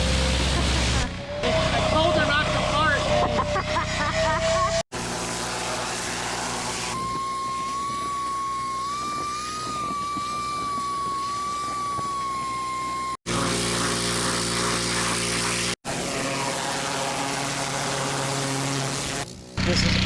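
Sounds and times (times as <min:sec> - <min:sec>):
pressure washer engine drone: 0:00.0 - 0:20.0
high wavering whine: 0:01.2 - 0:19.9
hiss of spray: 0:04.9 - 0:19.3.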